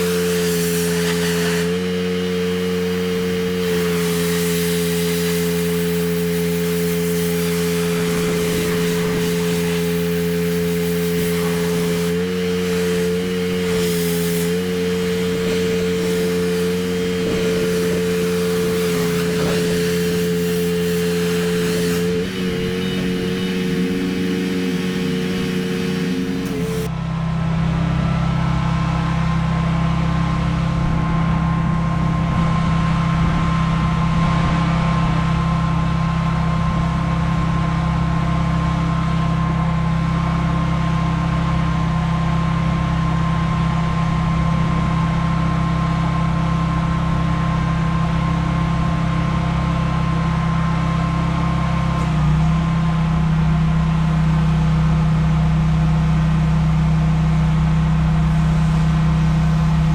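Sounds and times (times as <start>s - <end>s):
water spray hissing: 0.0s - 26.9s
pressure washer engine running: 0.0s - 59.9s.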